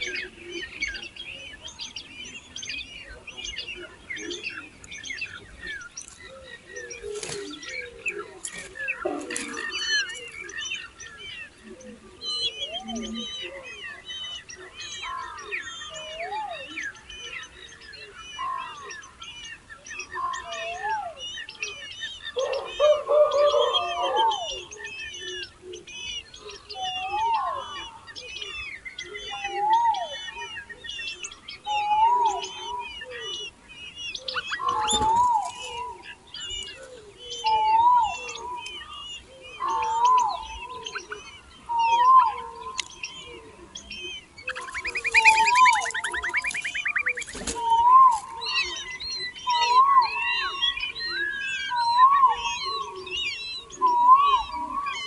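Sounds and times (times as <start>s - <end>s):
birds chirping: 0.0s - 55.0s
lower rising and falling bird call: 29.2s - 55.0s.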